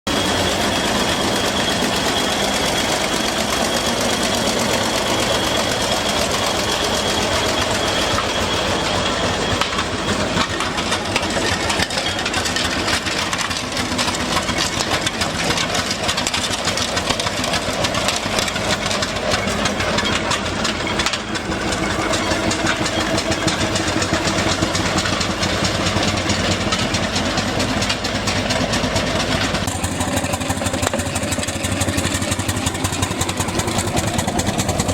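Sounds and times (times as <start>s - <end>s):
thin high tone: 0.1s - 13.4s
steam engine clatter: 0.1s - 34.9s.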